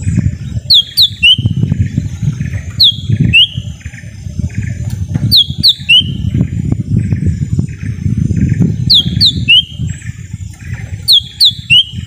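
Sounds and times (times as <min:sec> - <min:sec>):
bird whistling sharp notes: 0:00.7 - 0:01.6, 0:02.8 - 0:03.6, 0:05.3 - 0:06.3, 0:08.9 - 0:09.8, 0:11.1 - 0:12.0.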